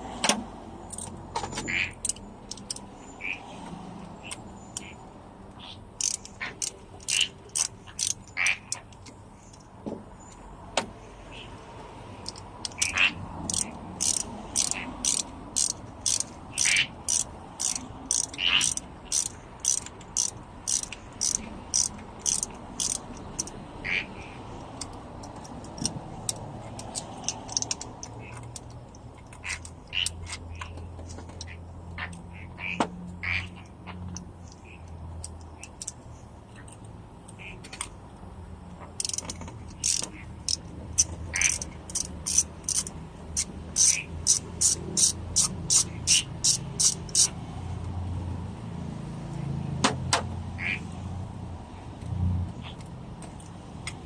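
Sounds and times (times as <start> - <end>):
ratchet wrench clicking: 0.2 - 3.1, 4.0 - 5.0, 5.8 - 10.9, 12.1 - 32.2, 34.1 - 37.9, 39.0 - 47.4.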